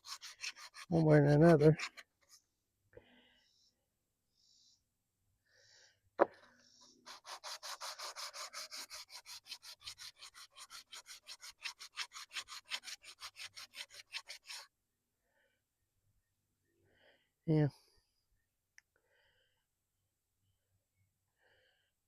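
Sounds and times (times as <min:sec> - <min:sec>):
sandpaper rubbing: 0:00.0 - 0:02.4, 0:06.9 - 0:14.7.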